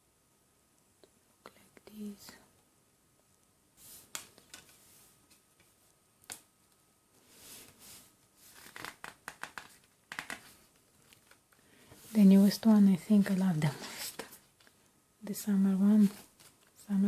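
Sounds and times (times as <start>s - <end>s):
paper and plastic rustles: 16.0s - 16.8s.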